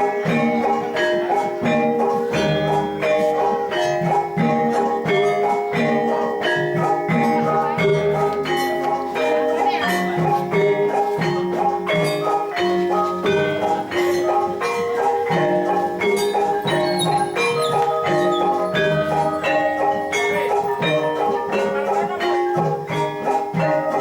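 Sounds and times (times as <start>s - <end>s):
gamelan metallophones ringing: 0.0s - 24.0s.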